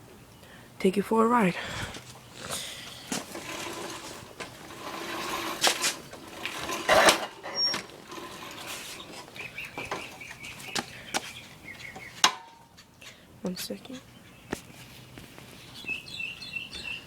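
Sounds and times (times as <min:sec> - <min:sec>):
engine recoil pull-start: 0:02.4 - 0:09.4.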